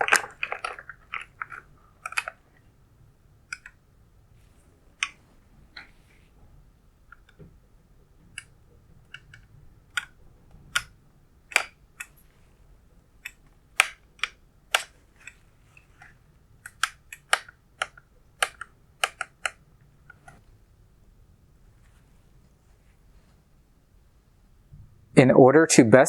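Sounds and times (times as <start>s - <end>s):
sharp clicks and taps: 16.0s - 20.4s.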